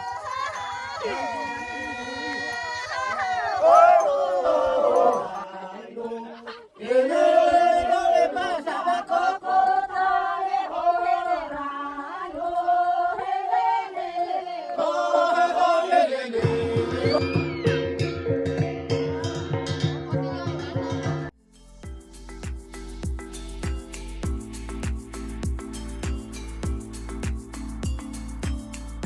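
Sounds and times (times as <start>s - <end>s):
group of voices chanting: 1.0s - 17.3s.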